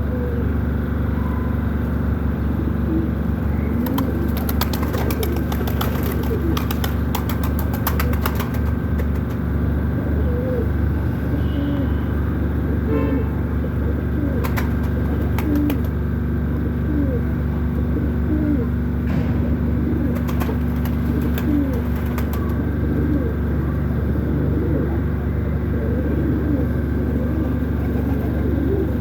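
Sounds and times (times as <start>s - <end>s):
pigeons cooing: 0.0s - 0.7s, 2.5s - 12.9s, 13.5s - 29.0s
low hum: 16.2s - 29.0s.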